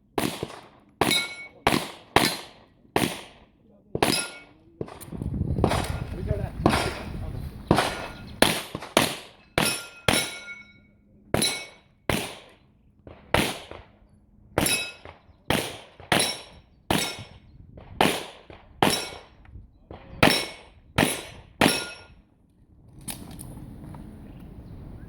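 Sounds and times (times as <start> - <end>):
handgun shots: 0.2 - 3.4, 4.0 - 6.0, 7.7 - 10.6, 11.4 - 13.8, 14.6 - 17.3, 18.0 - 19.2, 20.2 - 22.1
metallic ring: 1.1 - 1.6, 4.1 - 4.6, 9.4 - 12.0, 14.6 - 15.1, 21.6 - 22.2.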